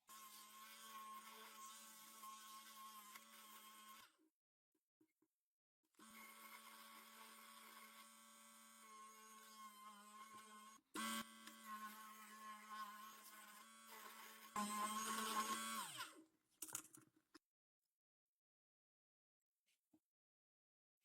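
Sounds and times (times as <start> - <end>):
small electric motor humming: 6.0 - 16.1.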